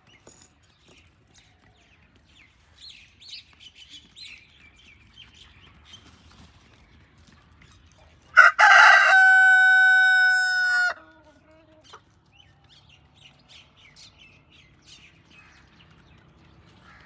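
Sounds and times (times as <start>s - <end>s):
rooster crowing: 8.4s - 11.0s.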